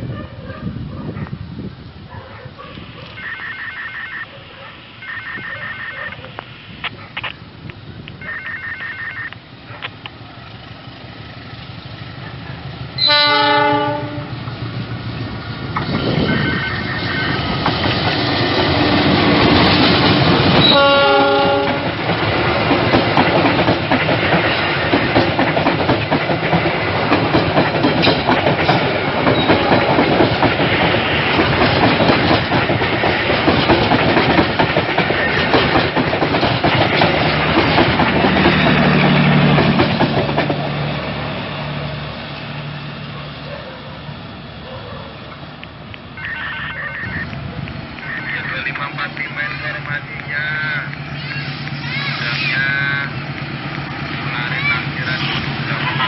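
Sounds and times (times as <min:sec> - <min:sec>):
locomotive horn: 0:13.0 - 0:14.4, 0:20.6 - 0:22.0
train wheels clattering on rails: 0:17.3 - 0:41.4.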